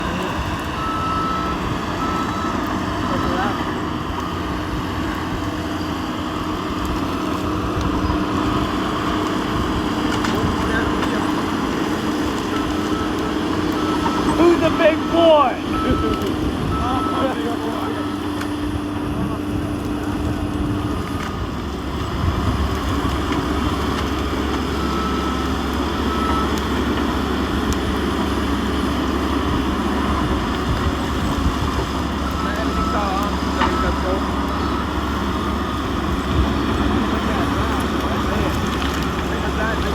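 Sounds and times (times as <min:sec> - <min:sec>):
large engine rumbling: 0:00.0 - 0:39.9.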